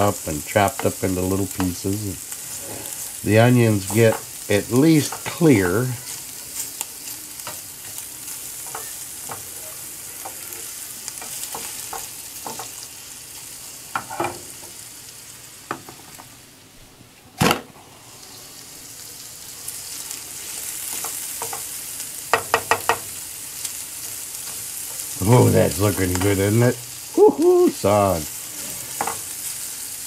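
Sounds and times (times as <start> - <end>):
sausage and onion sizzling in pan: 0.0 - 16.8, 17.4 - 30.0
spatula scraping pan: 0.8 - 12.8, 28.4 - 29.5.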